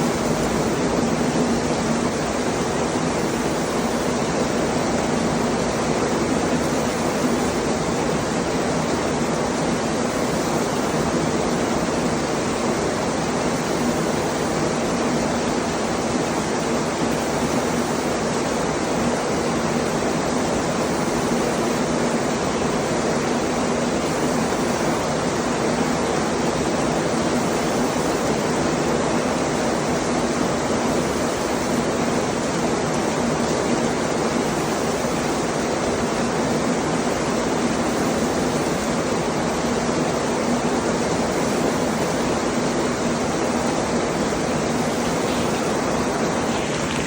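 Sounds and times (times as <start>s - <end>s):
heavy rain falling: 21.6s - 47.0s.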